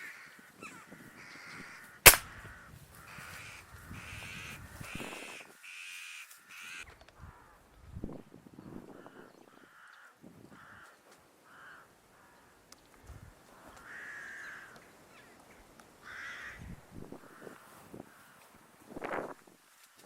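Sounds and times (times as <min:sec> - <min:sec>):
crows cawing: 0:00.0 - 0:07.6, 0:09.0 - 0:12.6, 0:13.5 - 0:15.3, 0:16.0 - 0:18.5
air rifle shot: 0:02.1 - 0:02.4.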